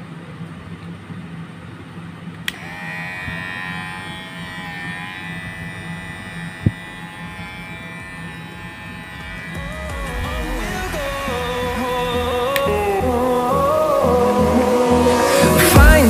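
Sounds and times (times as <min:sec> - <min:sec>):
hair trimmer switch click: 0:02.4 - 0:03.4, 0:06.2 - 0:08.4
hair trimmer buzzing: 0:02.5 - 0:13.4.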